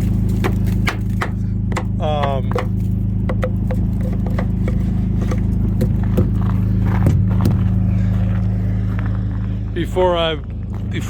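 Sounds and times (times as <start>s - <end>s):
diesel truck engine idling: 0.0s - 11.0s
irregular knocks and clicks: 0.4s - 6.4s.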